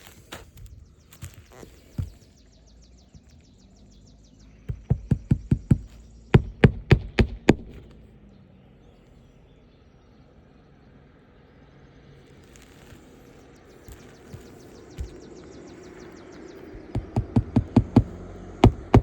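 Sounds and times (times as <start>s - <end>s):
hammer driving nails: 4.7s - 7.9s, 16.7s - 19.0s.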